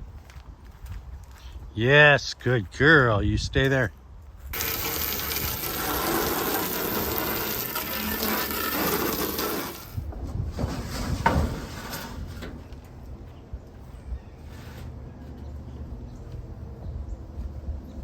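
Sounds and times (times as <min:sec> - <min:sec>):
garden hose spraying water: 0:04.5 - 0:10.1.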